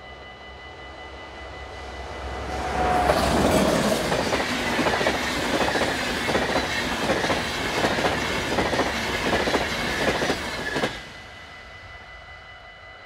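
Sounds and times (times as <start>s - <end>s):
train wheels clattering over rail joints: 3.6s - 11.0s.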